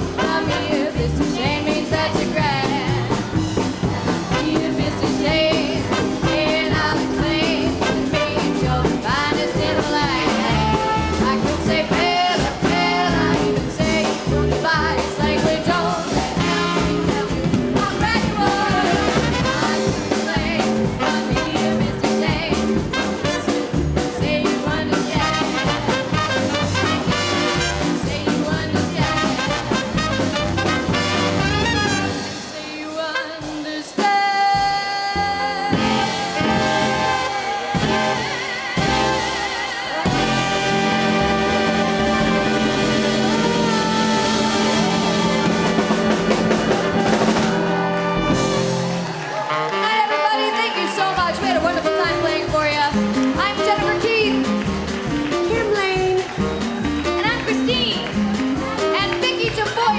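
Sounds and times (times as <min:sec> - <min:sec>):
women singing: 0:00.0 - 0:27.2, 0:27.8 - 0:30.2, 0:31.9 - 0:48.4
swing band playing: 0:00.0 - 0:59.9.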